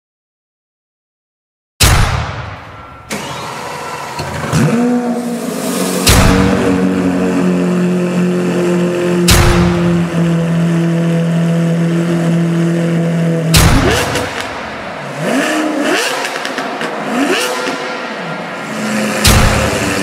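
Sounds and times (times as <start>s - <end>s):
sharp loud hit: 1.8s - 3.4s, 4.6s - 7.5s, 9.2s - 10.3s, 13.5s - 15.0s, 18.9s - 20.0s
car engine revving: 3.1s - 20.0s
car engine running: 3.1s - 20.0s.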